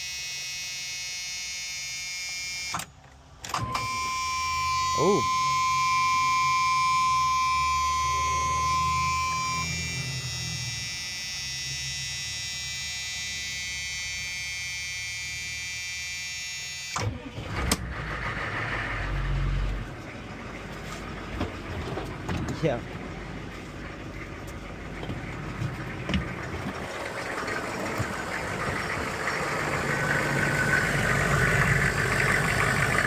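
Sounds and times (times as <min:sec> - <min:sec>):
diesel engine rumbling: 0:02.9 - 0:13.4, 0:17.0 - 0:33.0
high-pitched whine: 0:03.6 - 0:15.4.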